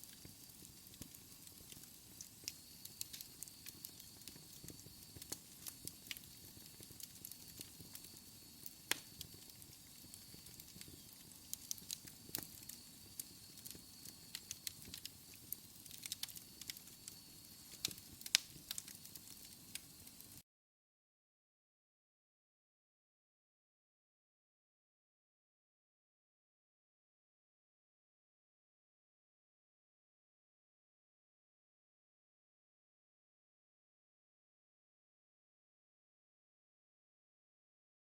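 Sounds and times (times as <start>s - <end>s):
wood fire crackling: 0.0s - 20.4s.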